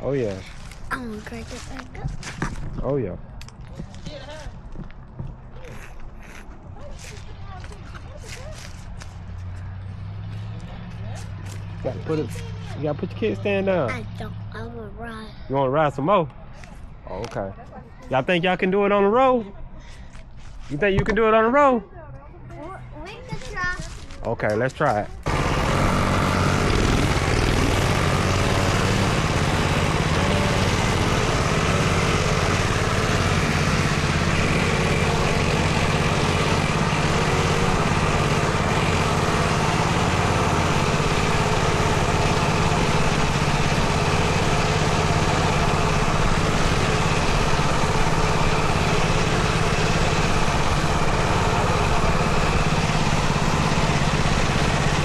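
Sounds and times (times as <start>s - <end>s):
dirt bike engine running: 25.2s - 55.0s.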